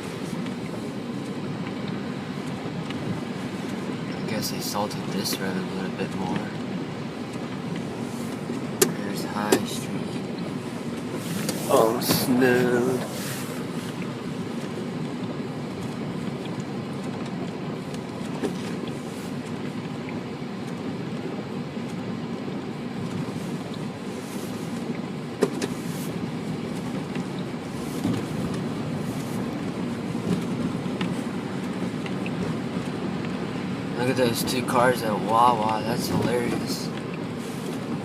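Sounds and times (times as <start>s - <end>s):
car road and engine noise: 0.0s - 38.0s.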